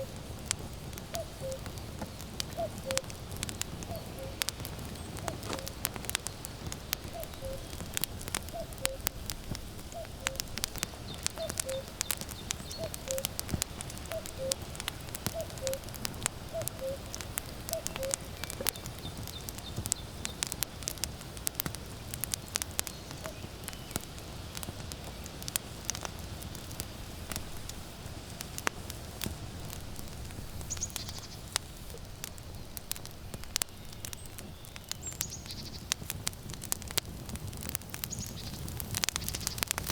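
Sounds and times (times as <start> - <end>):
wood fire crackling and popping: 0.0 - 39.9
cuckoo calling: 1.1 - 1.7, 2.5 - 3.1, 3.9 - 5.8, 7.0 - 7.8, 8.5 - 9.2, 9.9 - 10.6, 11.2 - 13.4, 14.0 - 18.8.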